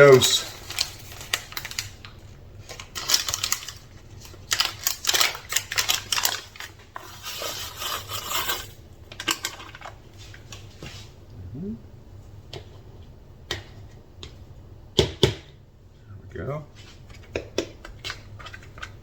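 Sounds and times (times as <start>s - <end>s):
rustling and scraping: 5.7s - 8.8s.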